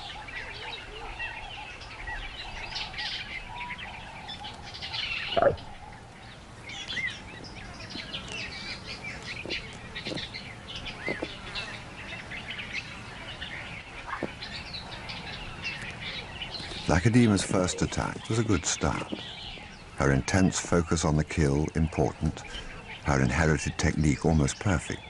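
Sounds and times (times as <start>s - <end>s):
birds chirping chorus: 0.0s - 25.0s.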